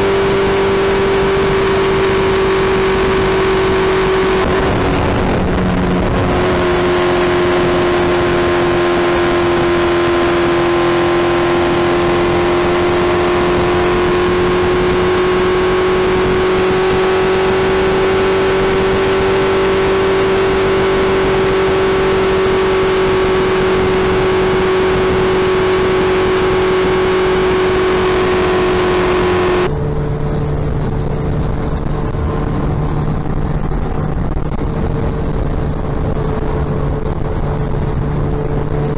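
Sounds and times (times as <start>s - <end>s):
motorcycle engine through loud exhaust: 0.0s - 38.9s.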